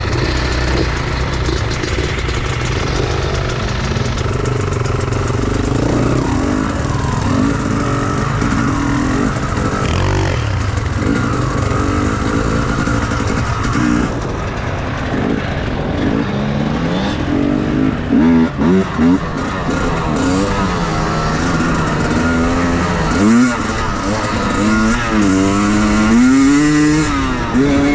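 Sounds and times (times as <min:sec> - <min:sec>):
motorcycle engine revving: 0:00.0 - 0:27.9.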